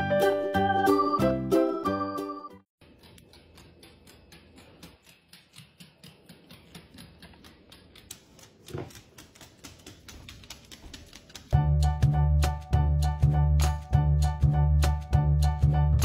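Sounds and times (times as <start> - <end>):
dog claws clicking on wood floor: 2.8 - 11.6.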